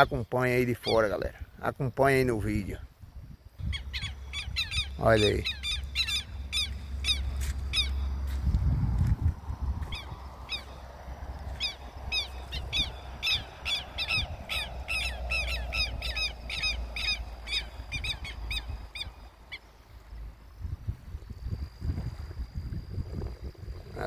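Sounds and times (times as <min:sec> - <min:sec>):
wind rumble on microphone: 0:00.0 - 0:24.0
bird calling sharp notes: 0:03.6 - 0:08.2, 0:11.6 - 0:19.8.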